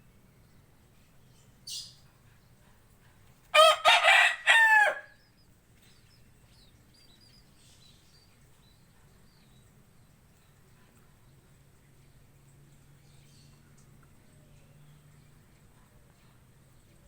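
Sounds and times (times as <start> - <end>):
faint high bird chirps: 1.2 - 2.1
rooster crowing: 3.6 - 5.2.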